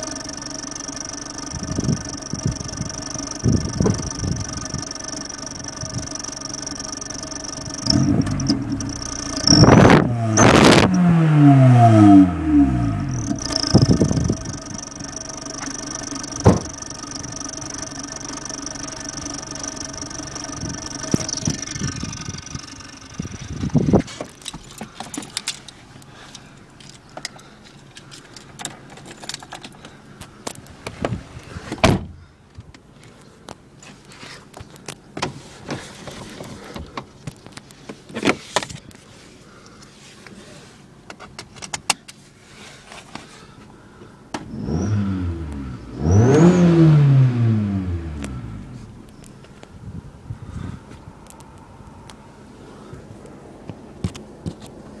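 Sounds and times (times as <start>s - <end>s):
car engine at steady revs: 0.0s - 28.6s, 42.3s - 55.0s.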